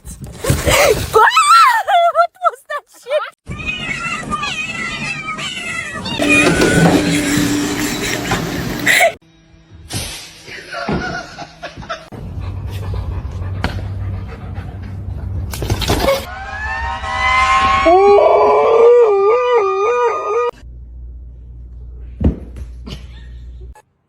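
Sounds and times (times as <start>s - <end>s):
dog howling: 5.9s - 9.2s.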